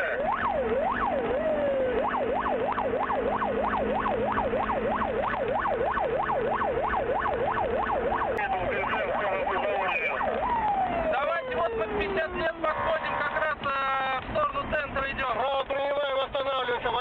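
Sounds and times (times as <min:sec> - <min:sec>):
police siren wail and yelp: 0:00.0 - 0:13.4.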